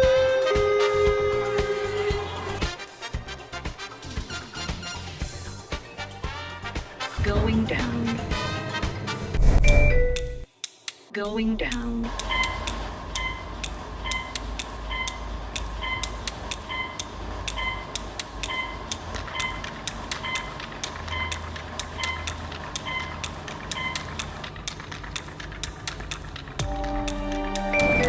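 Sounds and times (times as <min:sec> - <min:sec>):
lift car humming: 0:00.0 - 0:02.7, 0:12.0 - 0:28.0
short beeps: 0:09.6 - 0:10.4, 0:27.7 - 0:28.0
sharp ticks: 0:10.2 - 0:11.1, 0:11.7 - 0:27.2.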